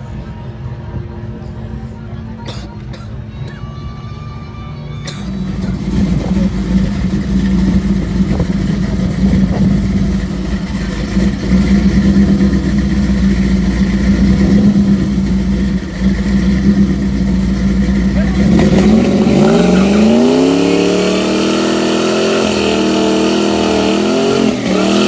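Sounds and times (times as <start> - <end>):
racing engine idling loudly: 5.1 - 25.0.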